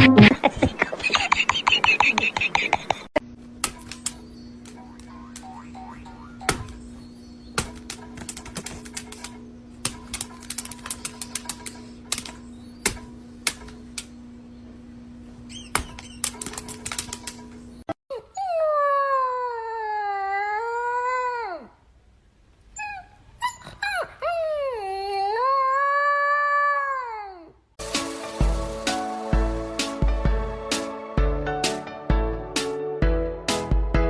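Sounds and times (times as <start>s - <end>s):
steady hum: 0.0s - 17.9s.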